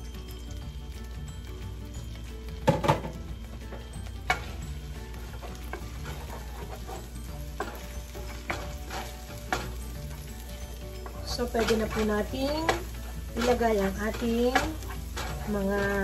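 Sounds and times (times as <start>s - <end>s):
garlic sizzling in a frying pan: 0.0s - 16.0s
wooden spatula stirring: 3.6s - 16.0s.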